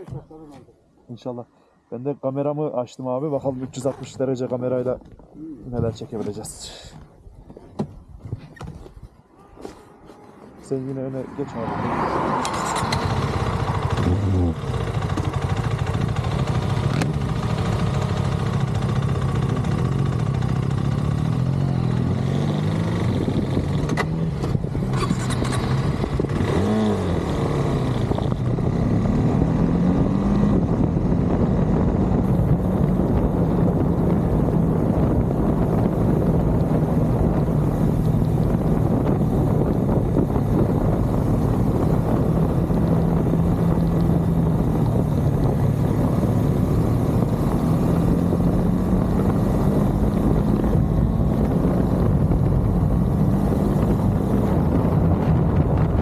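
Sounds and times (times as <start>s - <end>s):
wind and road noise: 0.0s - 56.0s
motorcycle engine running: 12.5s - 56.0s.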